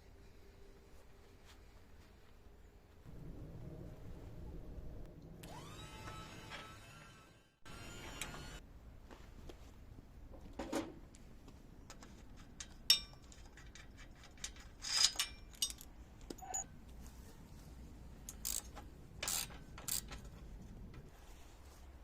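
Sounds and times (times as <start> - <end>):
metal clanks and clicks: 11.9 - 16.6.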